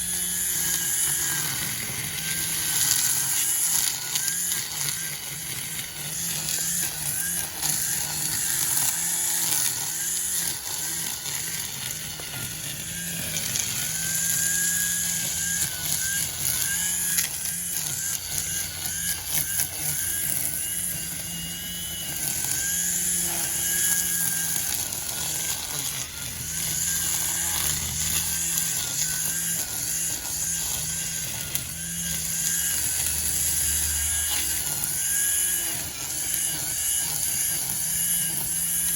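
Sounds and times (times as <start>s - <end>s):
string trimmer cutting grass: 0.0s - 38.9s.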